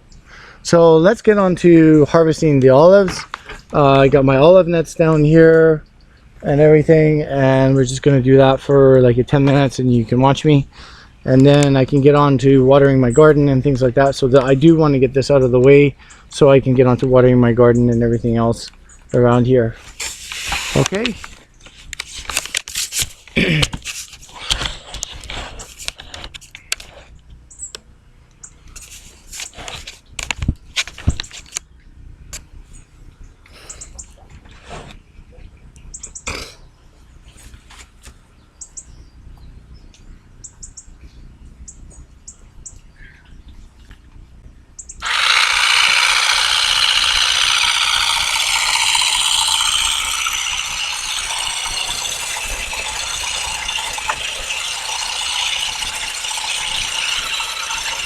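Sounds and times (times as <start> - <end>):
loud rattling clatter: 45.0 - 58.0.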